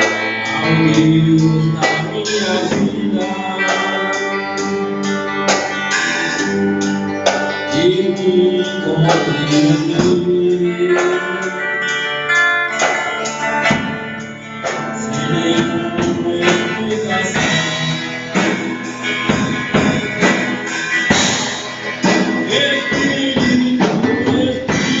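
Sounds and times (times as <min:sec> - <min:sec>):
band playing instrumental: 0:00.0 - 0:25.0
drum kit hits and cymbals: 0:14.6 - 0:25.0.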